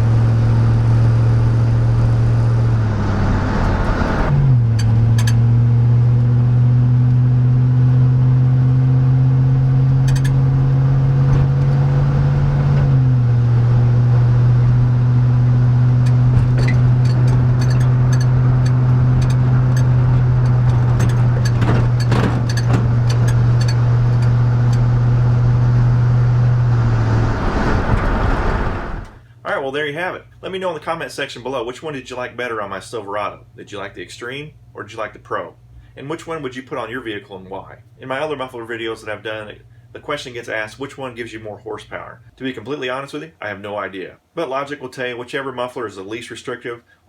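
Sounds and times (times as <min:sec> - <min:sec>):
deep engine exhaust drone: 0:00.0 - 0:29.4.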